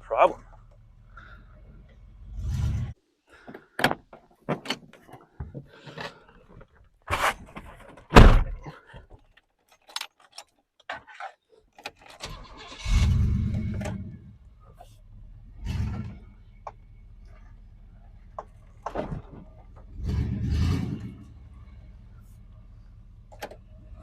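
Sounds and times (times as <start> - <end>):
truck engine rumbling: 0.0 - 3.0, 12.2 - 24.0.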